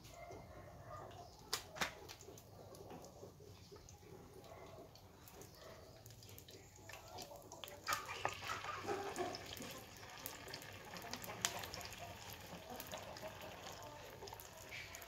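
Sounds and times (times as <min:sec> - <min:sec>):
dough sizzling in hot oil: 0:05.0 - 0:15.0.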